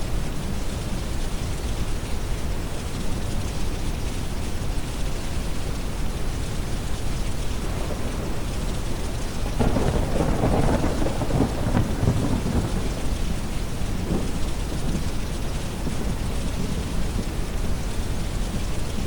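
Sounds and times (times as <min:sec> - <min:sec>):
steady rain: 0:00.0 - 0:19.0
deep brown noise: 0:05.7 - 0:19.0
thunder rumbling: 0:06.6 - 0:19.0.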